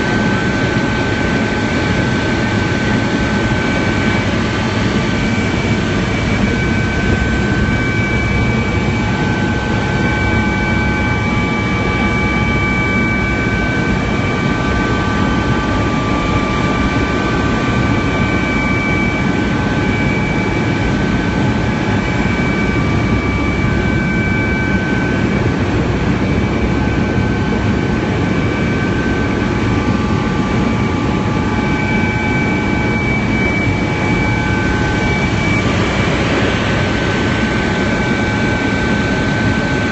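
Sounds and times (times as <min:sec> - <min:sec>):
helicopter rotor and turbine drone: 0:00.0 - 0:39.9
high whining tones: 0:00.2 - 0:39.9.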